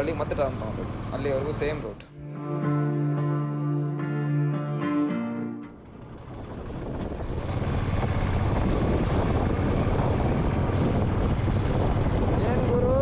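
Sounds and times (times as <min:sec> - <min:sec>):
motorcycle engine: 0:00.0 - 0:03.3, 0:05.0 - 0:13.0
wind rushing over microphone: 0:05.7 - 0:13.0.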